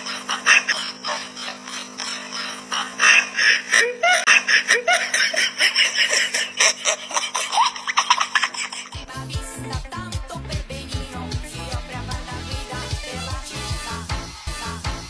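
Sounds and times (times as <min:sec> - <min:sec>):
person laughing: 0:00.0 - 0:09.1
steady low hum: 0:00.0 - 0:15.0.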